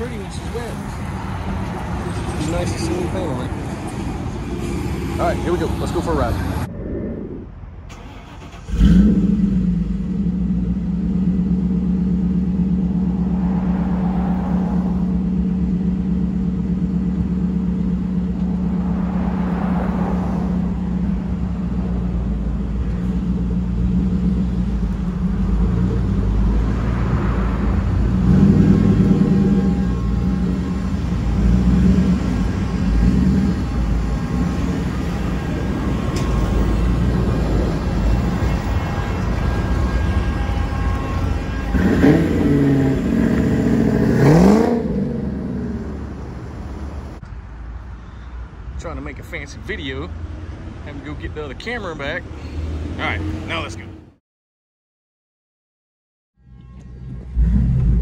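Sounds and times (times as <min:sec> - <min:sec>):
car engine starting and revving: 0:06.0 - 0:38.6, 0:41.7 - 0:47.2, 0:57.1 - 0:58.0.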